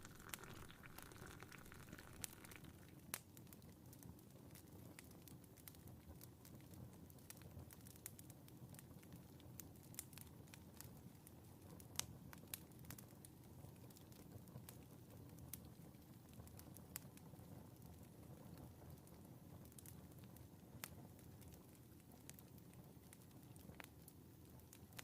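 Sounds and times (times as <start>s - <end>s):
fireplace fire crackling: 0.0s - 25.0s.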